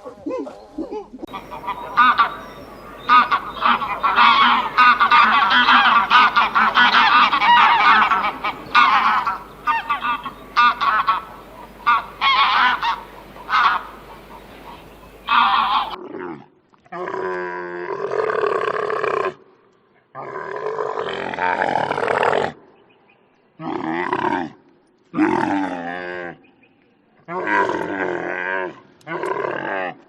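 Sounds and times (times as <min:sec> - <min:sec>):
large animal deep calls: 0:01.2 - 0:16.0
geese honking: 0:01.3 - 0:16.0.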